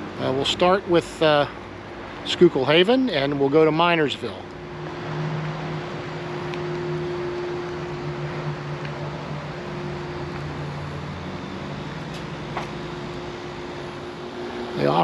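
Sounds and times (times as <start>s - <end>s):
motor humming: 4.2s - 15.0s.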